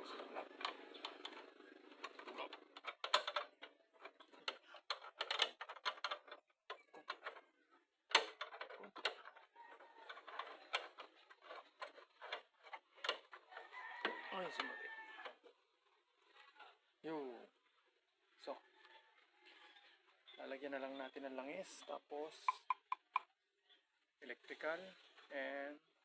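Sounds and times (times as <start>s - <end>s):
clicks and taps of parts and tools: 2.0s - 7.4s, 8.1s - 9.4s, 22.4s - 23.3s.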